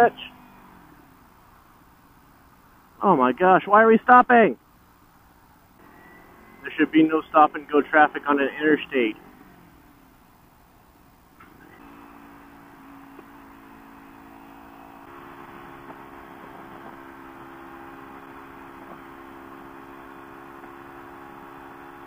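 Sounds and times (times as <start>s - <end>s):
motorcycle engine running: 5.8s - 22.0s.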